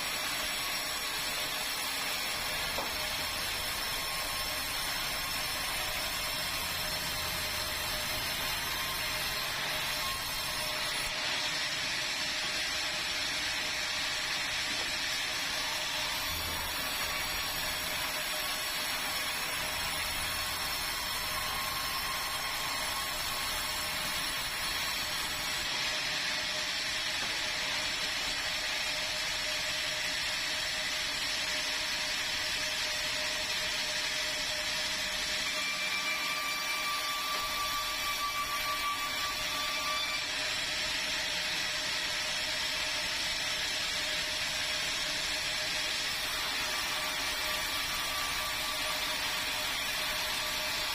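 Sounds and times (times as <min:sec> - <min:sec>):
band saw sawing timber: 0:00.0 - 0:11.1, 0:15.0 - 0:25.7.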